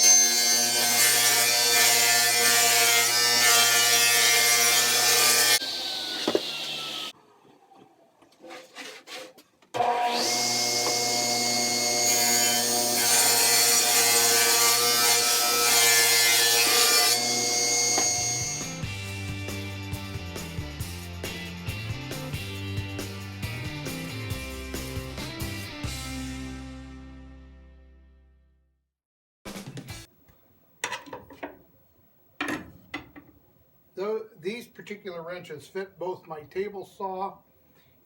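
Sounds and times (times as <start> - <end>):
electric power saw cutting wood: 0.0 - 7.2, 9.8 - 18.9
small knocks: 6.2 - 6.5.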